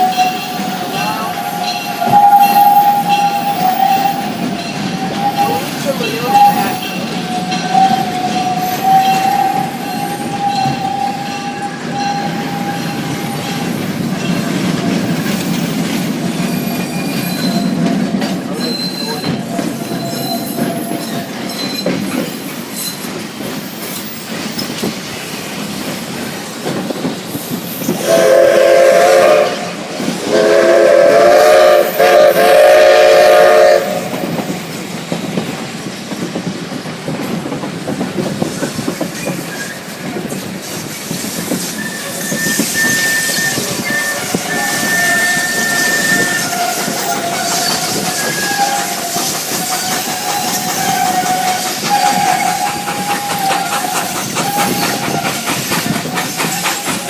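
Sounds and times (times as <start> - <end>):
locomotive chime whistle: 0.0 - 13.8, 16.8 - 21.9, 28.0 - 29.7, 30.3 - 34.2, 41.8 - 55.2
steam locomotive working: 0.0 - 57.0.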